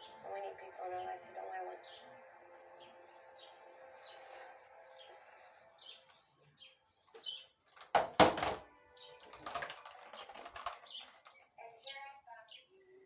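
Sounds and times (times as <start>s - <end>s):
small birds chirping: 0.0s - 8.0s, 8.9s - 13.0s
soft background music: 0.0s - 13.0s
scuffing noises: 5.8s - 7.4s.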